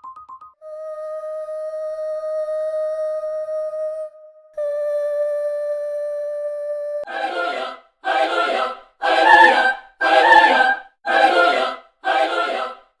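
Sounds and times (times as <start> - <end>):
held musical tone: 7.0 - 12.8
choir chords: 7.1 - 13.0.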